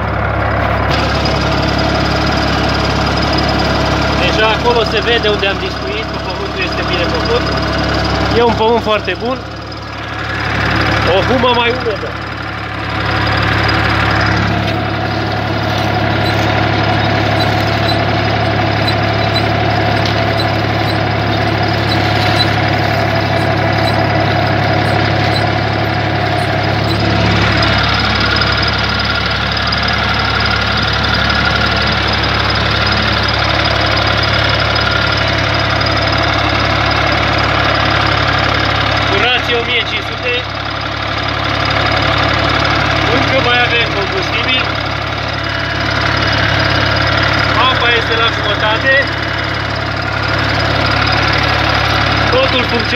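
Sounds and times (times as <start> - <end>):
tractor diesel engine under load: 0.0 - 52.9.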